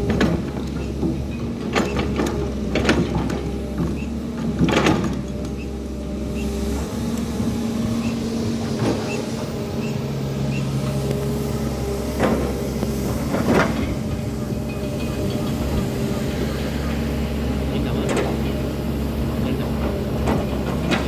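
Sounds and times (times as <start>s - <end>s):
metallic clanks and knocks: 0.0s - 5.6s, 12.1s - 18.8s, 19.4s - 21.0s
diesel engine running: 0.0s - 21.0s.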